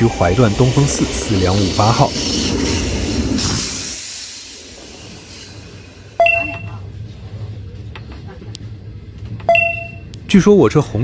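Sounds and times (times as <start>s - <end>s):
rushing noise: 0.0s - 6.4s.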